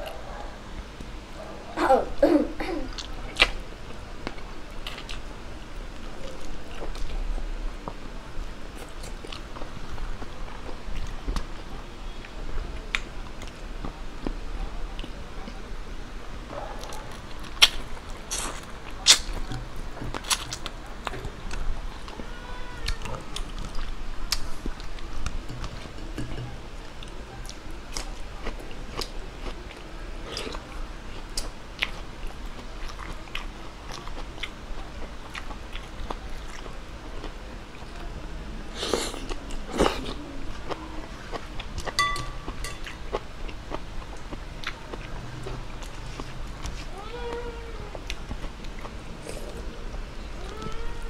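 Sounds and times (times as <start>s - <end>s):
person chewing food: 8.8s - 11.5s, 16.8s - 36.7s, 38.8s - 49.9s.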